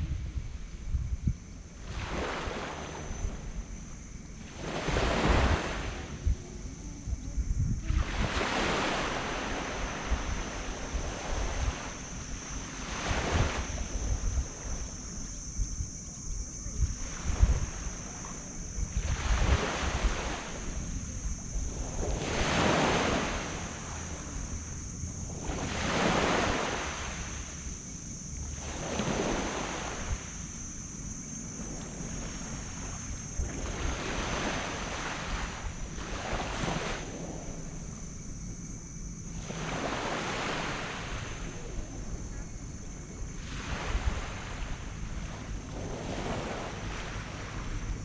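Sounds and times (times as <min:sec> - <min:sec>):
wind rumble on microphone: 0:00.0 - 0:48.0
waves washing up on sand: 0:04.4 - 0:06.8, 0:07.8 - 0:15.4, 0:16.8 - 0:27.8, 0:28.5 - 0:30.5, 0:31.6 - 0:38.1, 0:39.3 - 0:48.0.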